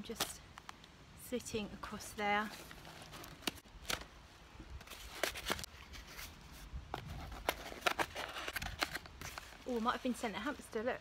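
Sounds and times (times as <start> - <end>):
cardboard box being opened: 7.0 - 9.8.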